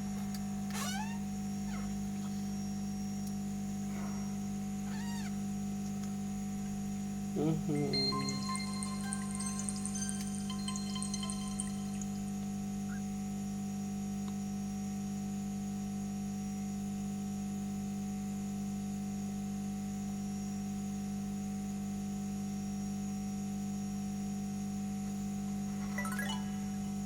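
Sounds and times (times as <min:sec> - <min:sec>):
electrical hum: 0:00.0 - 0:13.7.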